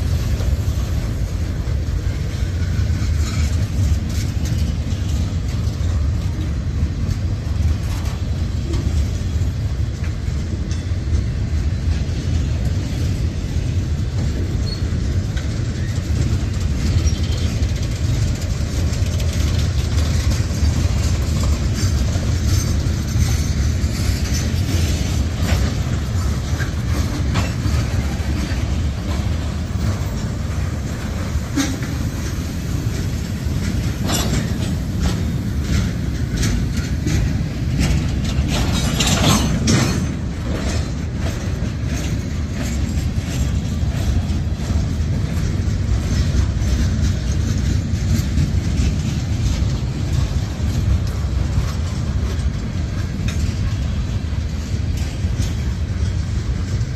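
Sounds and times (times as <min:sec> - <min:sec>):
freight train rumbling past: 0:00.0 - 0:56.9
wheels clattering over rail joints: 0:00.0 - 0:56.9.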